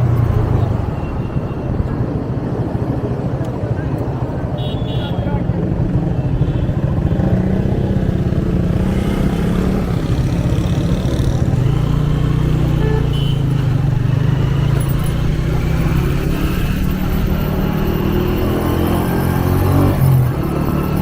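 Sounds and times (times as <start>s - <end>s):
motorcycle engine running: 5.5s - 19.3s.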